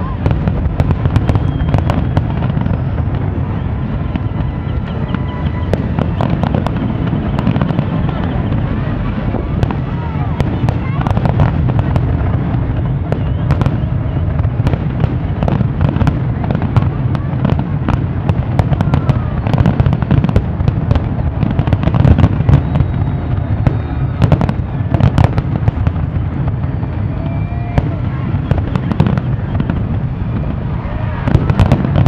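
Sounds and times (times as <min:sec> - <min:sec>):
constant low rumble: 0:00.0 - 0:32.0
fireworks bangs and crackles: 0:00.0 - 0:32.0.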